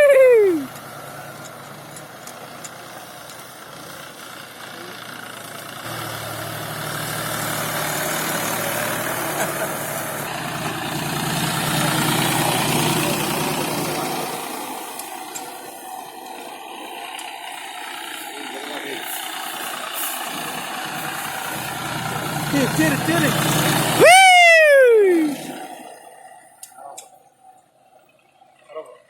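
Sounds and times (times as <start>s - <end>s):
tractor engine running: 0.0s - 29.0s
loud falling tone: 23.9s - 26.2s.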